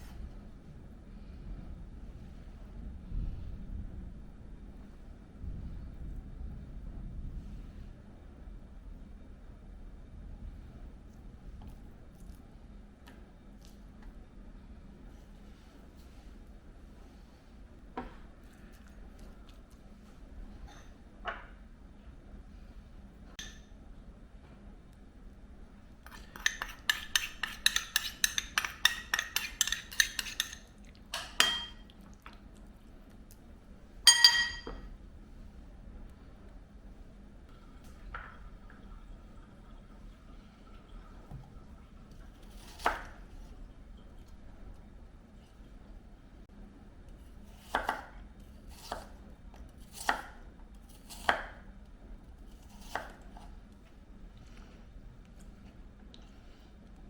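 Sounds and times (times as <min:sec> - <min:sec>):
utensil clinking against a bowl: 0:26.1 - 0:31.8, 0:34.1 - 0:34.9
knife chopping on cutting board: 0:47.6 - 0:48.1, 0:51.0 - 0:51.6, 0:52.6 - 0:53.5.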